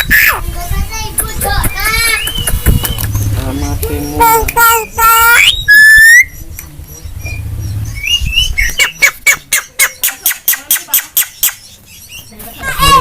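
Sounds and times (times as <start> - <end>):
bird harsh squawks: 0.0 - 0.4, 4.2 - 6.4
bird clicking chatter: 1.1 - 4.8, 8.6 - 11.8
bird rising whistle: 5.4 - 6.4.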